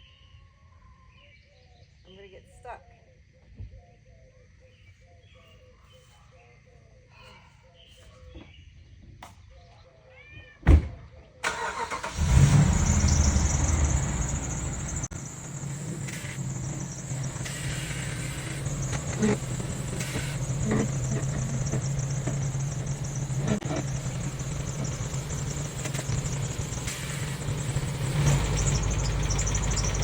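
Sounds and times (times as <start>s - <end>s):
thump: 10.6s - 11.1s
truck engine starting and idling: 11.4s - 30.0s.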